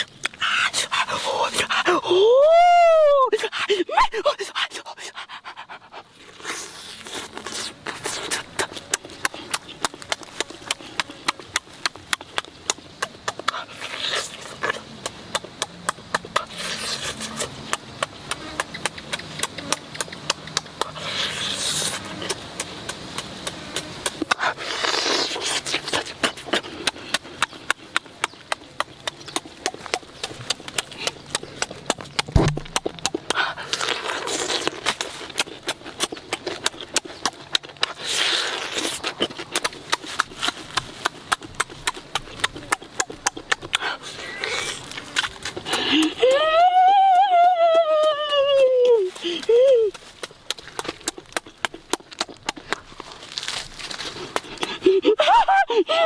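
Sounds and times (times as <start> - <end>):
open-mouthed chewing and lip-smacking: 0.0 - 56.0
breathy sounds: 33.1 - 34.4, 43.5 - 50.3, 52.5 - 56.0.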